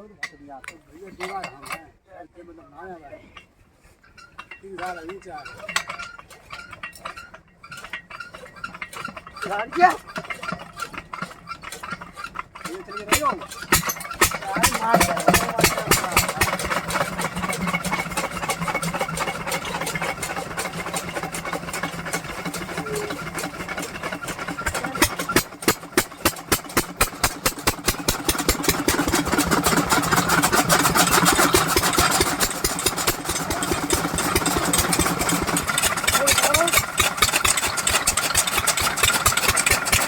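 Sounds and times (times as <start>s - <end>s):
diesel engine knocking: 8.7s - 40.0s.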